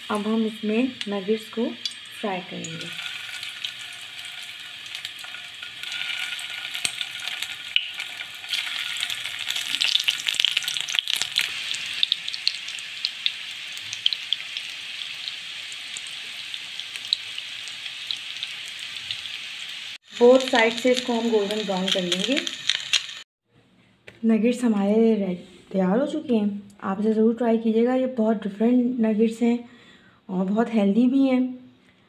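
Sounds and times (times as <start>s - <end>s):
nuggets sizzling in hot oil: 0.0s - 23.3s
oil crackling pops: 2.8s - 12.6s, 20.2s - 23.2s.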